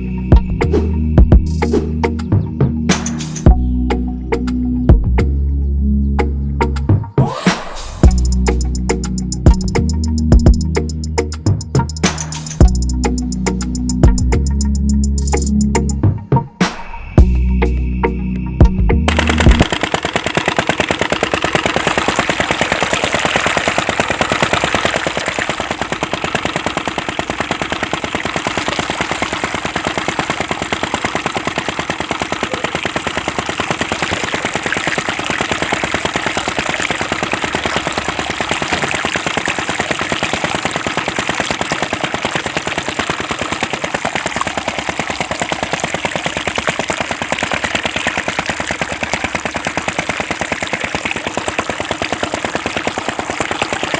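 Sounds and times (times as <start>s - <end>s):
small engine knocking rattle: 0.0s - 0.5s, 8.0s - 15.6s, 19.1s - 53.9s.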